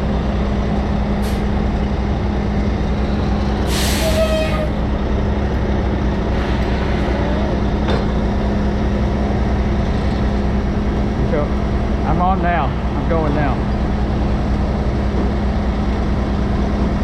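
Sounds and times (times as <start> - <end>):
diesel truck engine running: 0.0 - 17.0
air hiss: 3.7 - 4.3.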